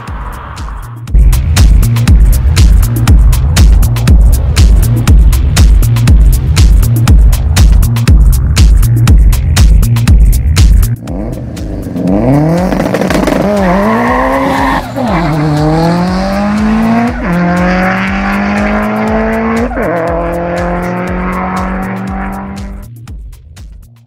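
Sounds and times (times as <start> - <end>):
car engine accelerating through gears: 11.0 - 22.8.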